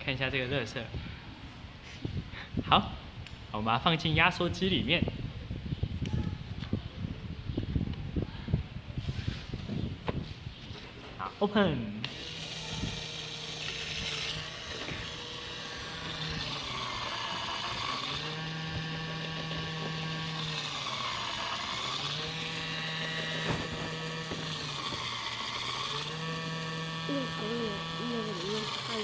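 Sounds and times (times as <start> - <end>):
garbage compactor motor hum: 12.0 - 29.0.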